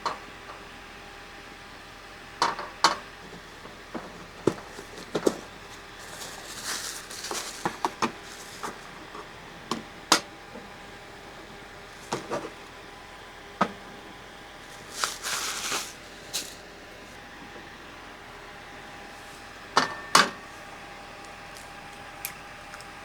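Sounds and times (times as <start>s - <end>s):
short rustles: 4.2s - 9.0s, 14.6s - 17.2s.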